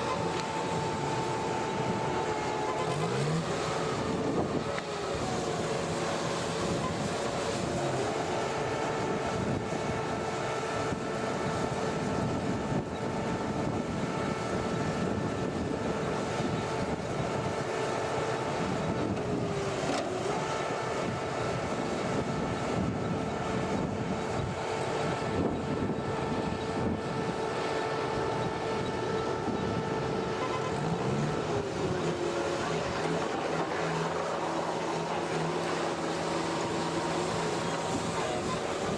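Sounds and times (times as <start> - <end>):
engine running steadily: 0.0 - 38.9
steady whine: 0.0 - 38.9.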